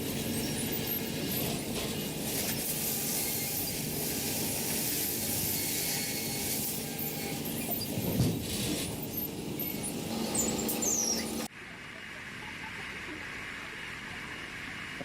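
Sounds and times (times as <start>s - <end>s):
woodworking machinery humming: 9.1s - 11.5s.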